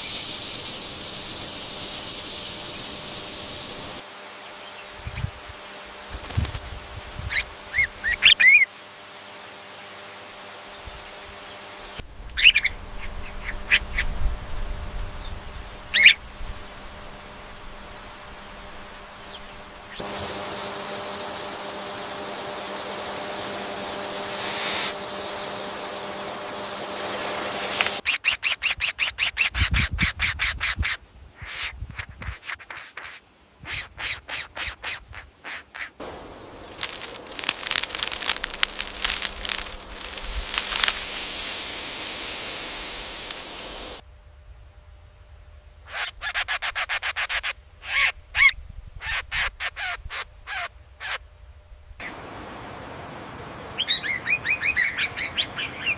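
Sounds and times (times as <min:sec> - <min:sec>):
steady hiss: 0:00.0 - 0:28.1, 0:34.4 - 0:45.8, 0:51.5 - 0:55.9
sharp repeated bird calls: 0:07.3 - 0:08.7, 0:12.3 - 0:14.2, 0:28.0 - 0:44.0, 0:53.8 - 0:55.9
bird chirps: 0:12.3 - 0:14.2, 0:53.8 - 0:55.9.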